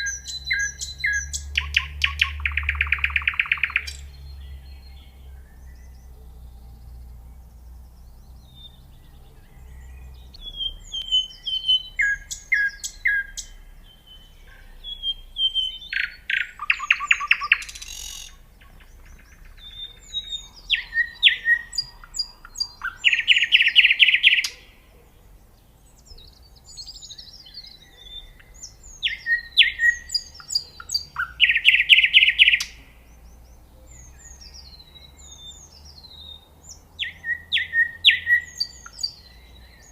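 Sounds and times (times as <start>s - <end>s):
nightingale singing: 0.0s - 39.9s
faint low rumble: 3.8s - 15.9s.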